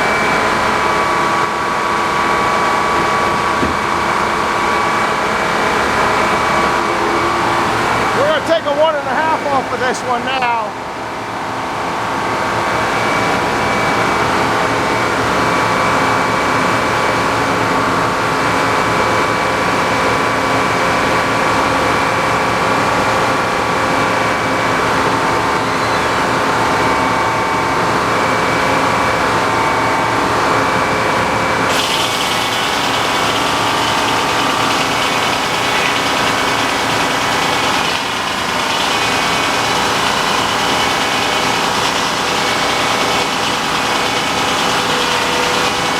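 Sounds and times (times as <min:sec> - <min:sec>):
saw whining through wood: 0:24.8 - 0:27.4, 0:31.7 - 0:45.9
tractor engine running: 0:31.7 - 0:45.9.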